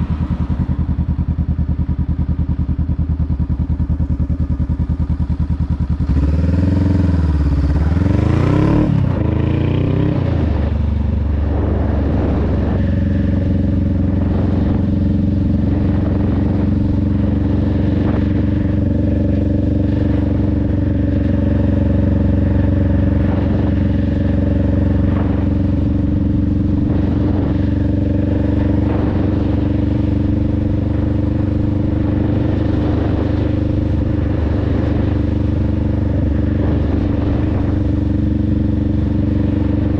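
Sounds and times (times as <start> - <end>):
motorcycle engine and exhaust: 0.0 - 39.9.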